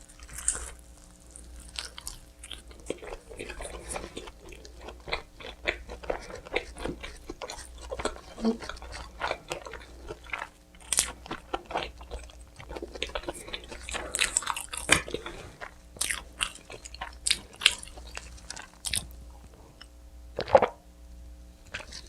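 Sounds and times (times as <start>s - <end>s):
crisp bites and wet chewing: 0.0s - 20.7s, 21.7s - 22.0s
faint steady hum: 0.0s - 22.0s.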